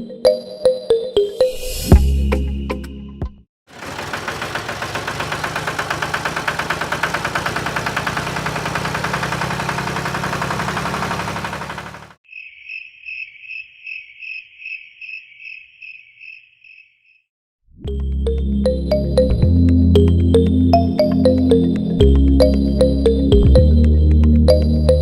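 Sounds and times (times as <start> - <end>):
small motor running: 3.7 - 12.2
cricket chirping: 12.3 - 17.2.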